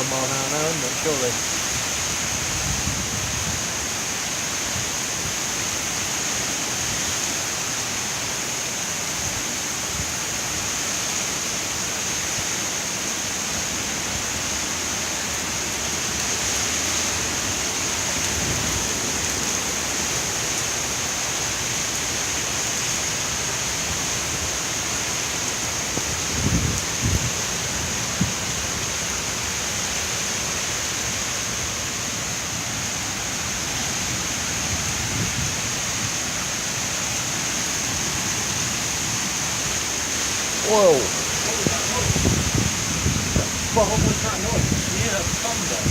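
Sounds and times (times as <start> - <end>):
wind gusts rumbling on microphone: 0.0 - 7.4, 9.1 - 10.9, 14.1 - 22.1, 23.0 - 30.0, 33.2 - 45.9
heavy rain: 0.0 - 45.9.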